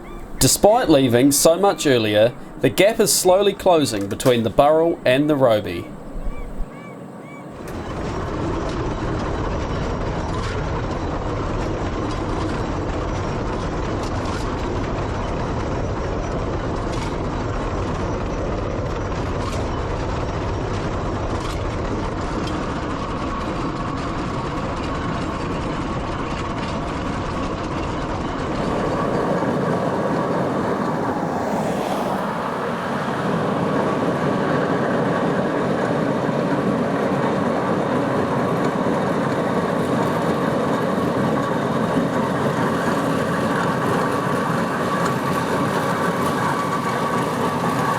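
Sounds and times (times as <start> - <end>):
steam traction engine running: 0.0 - 6.7, 27.6 - 47.9.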